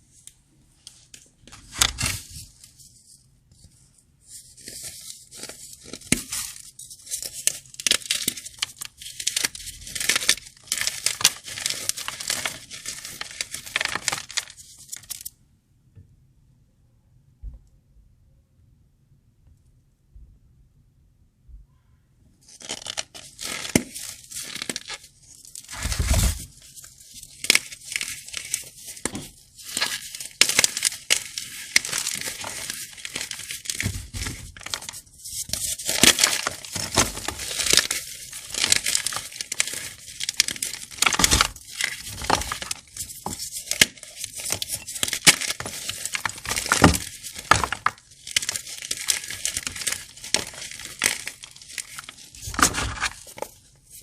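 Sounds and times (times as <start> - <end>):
chalk blocks crunching: 22.6 - 54.0.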